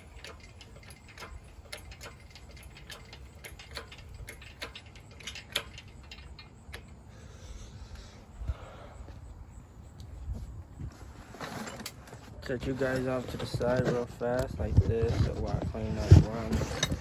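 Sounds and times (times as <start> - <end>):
ratchet wrench clicking: 0.0 - 7.0.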